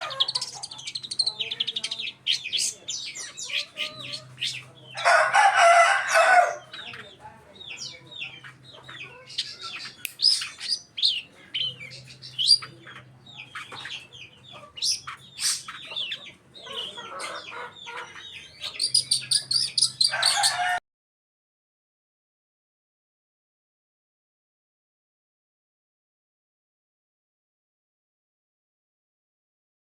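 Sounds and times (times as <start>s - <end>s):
harsh scratchy bird calls: 0.0s - 20.8s
bird chirping and whistling: 10.1s - 11.2s, 18.8s - 20.1s.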